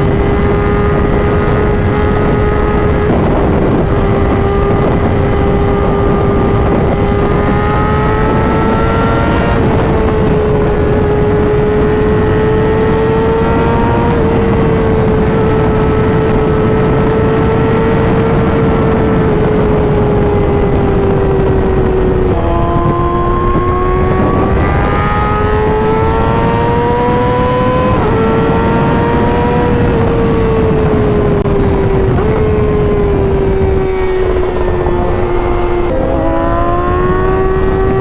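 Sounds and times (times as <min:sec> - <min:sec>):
motorcycle engine running hard: 0:00.0 - 0:38.0
rush of wind: 0:00.0 - 0:38.0.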